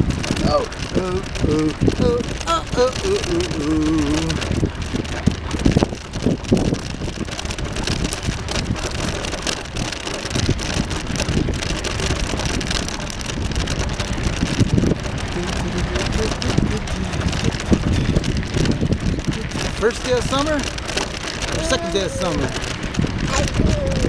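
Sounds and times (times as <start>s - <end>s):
bicycle knocks and rattles: 0.0s - 2.5s, 4.0s - 16.0s, 17.1s - 21.6s
bicycle tyre and wind rush: 0.0s - 24.0s.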